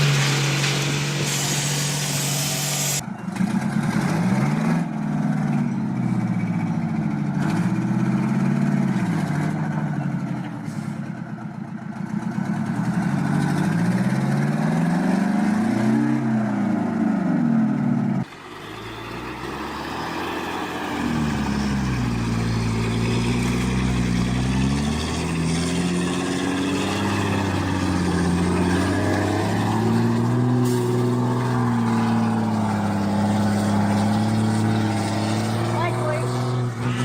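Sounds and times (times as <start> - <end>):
vehicle engine revving: 12.1 - 37.0
steady engine hum: 18.2 - 37.0.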